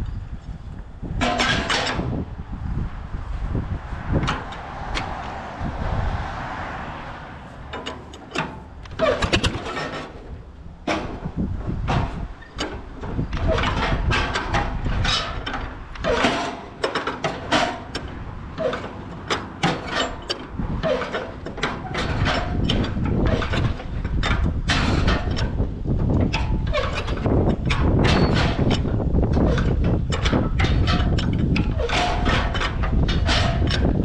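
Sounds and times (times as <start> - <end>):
tractor engine running unevenly: 7.2 - 12.2, 16.0 - 34.0.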